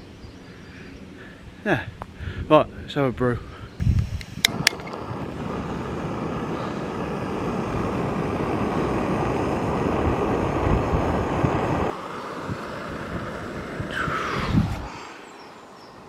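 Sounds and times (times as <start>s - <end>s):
gas stove burner hissing: 3.8s - 15.2s
brief rising sound: 13.9s - 15.3s.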